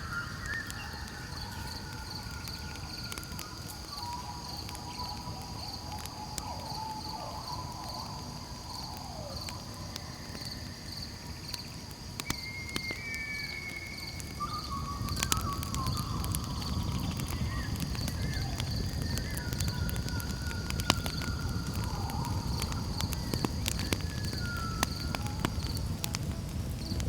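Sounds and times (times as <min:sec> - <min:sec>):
campfire crackling and popping: 0:00.0 - 0:27.0
crickets trilling: 0:00.0 - 0:27.0
faint long whistling tones: 0:00.0 - 0:27.0.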